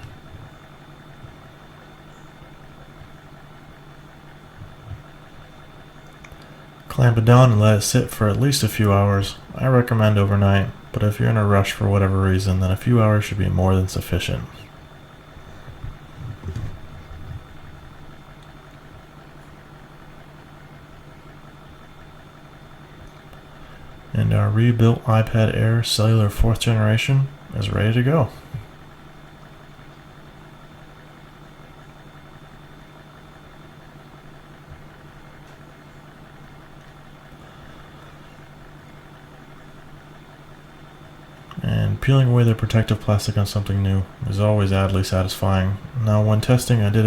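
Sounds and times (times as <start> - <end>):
faint high whine: 0.0 - 47.0
low background hum: 0.0 - 47.0
soft low thumps: 4.5 - 5.7, 14.7 - 19.6
soft bumps: 15.3 - 18.5.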